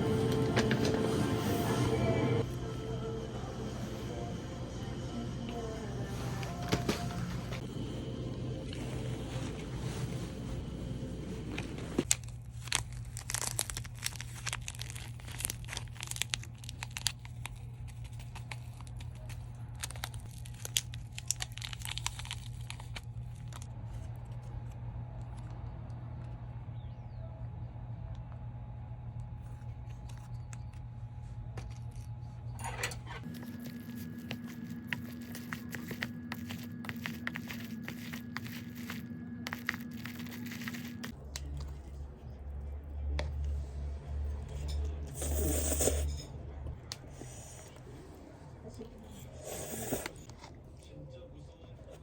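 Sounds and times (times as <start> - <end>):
steady low hum: 0.0 - 13.2, 22.2 - 52.0
plastic packaging crinkling: 11.5 - 23.7, 33.2 - 41.7.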